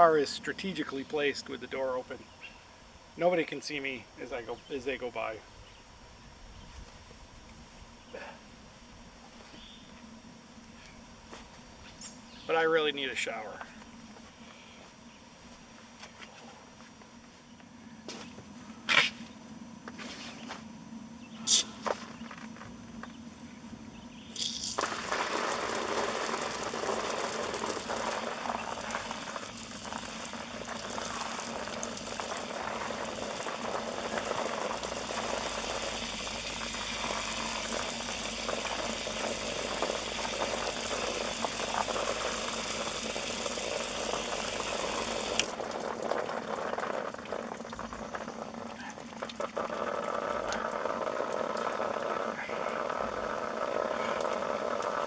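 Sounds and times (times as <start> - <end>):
shower head spraying water: 24.4 - 45.6.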